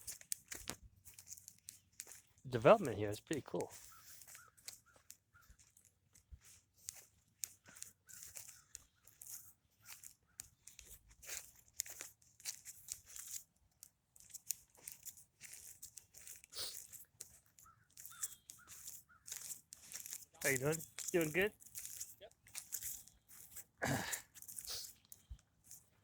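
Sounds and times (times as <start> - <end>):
footsteps on dry vegetation: 0.0 - 26.0.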